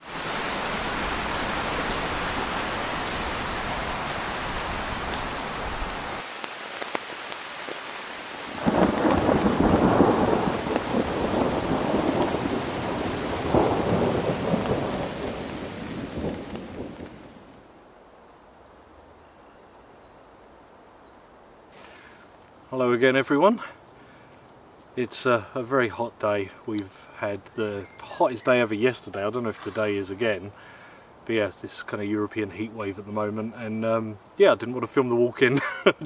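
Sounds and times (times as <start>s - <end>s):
heavy rain: 0.0s - 17.8s
water drips: 0.3s - 8.0s
thunder rumbling: 8.5s - 17.6s.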